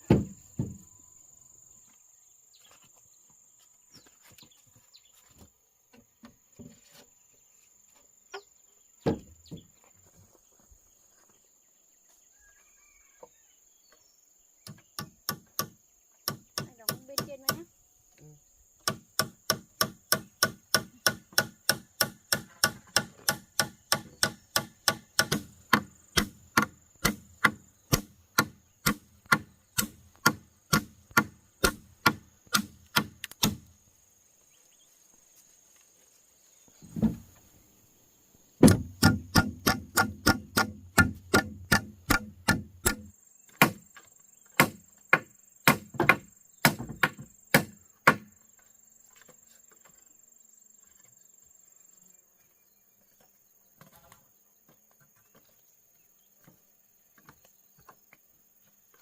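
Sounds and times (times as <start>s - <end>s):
dull thump: 0.0s - 0.9s, 36.8s - 37.4s, 38.6s - 43.8s
hammer driving nails into wood: 18.8s - 33.7s, 38.6s - 43.8s, 44.6s - 48.3s.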